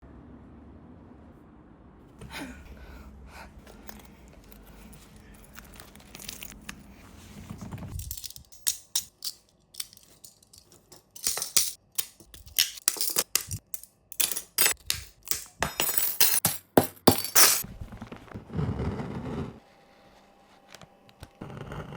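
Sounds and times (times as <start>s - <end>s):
low steady hum: 0.0s - 13.6s.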